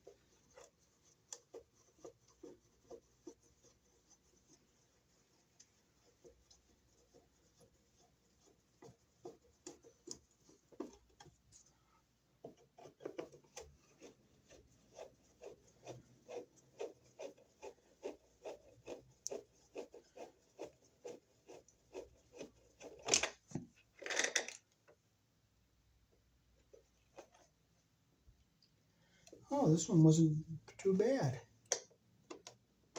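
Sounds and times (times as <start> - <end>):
screwdriver clicking and scraping: 22.4 - 23.4, 24.0 - 24.7.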